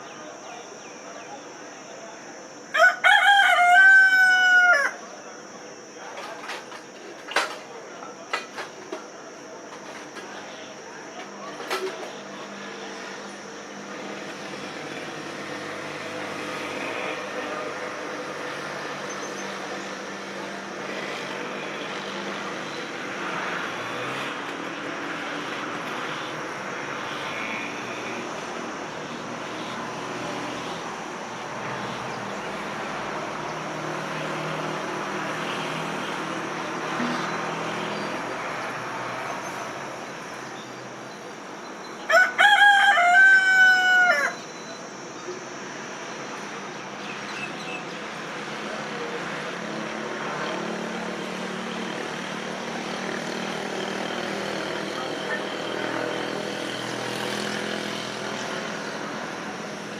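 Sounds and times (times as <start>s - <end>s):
rooster crowing: 2.7s - 5.1s, 42.0s - 44.7s.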